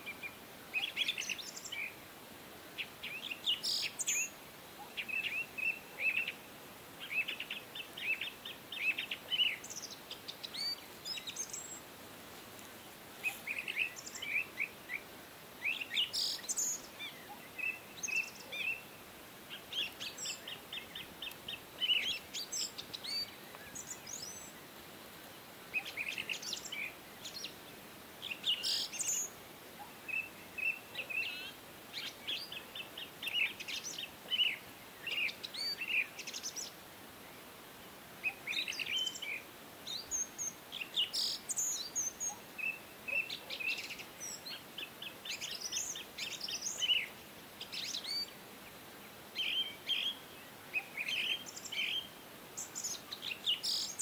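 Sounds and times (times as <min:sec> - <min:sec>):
faint steady hiss: 0:00.0 - 0:54.0
birds chirping and trilling: 0:02.8 - 0:11.8, 0:13.2 - 0:24.8, 0:38.2 - 0:54.0.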